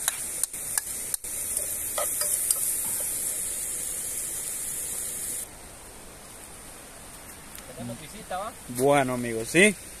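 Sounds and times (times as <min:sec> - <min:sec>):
vegetables sizzling in hot oil: 0:00.0 - 0:05.4.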